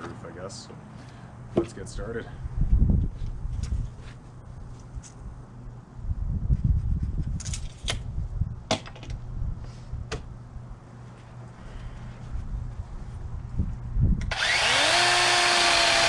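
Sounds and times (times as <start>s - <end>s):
sharp handling clicks and knocks: 8.7s - 9.2s.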